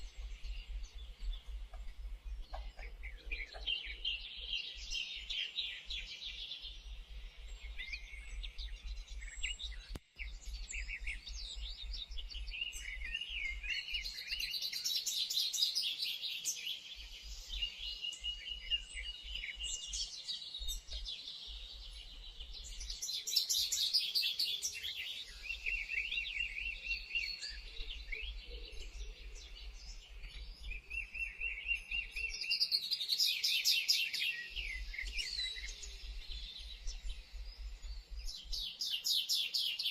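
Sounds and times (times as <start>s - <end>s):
songbirds singing and calling: 0.0s - 39.9s.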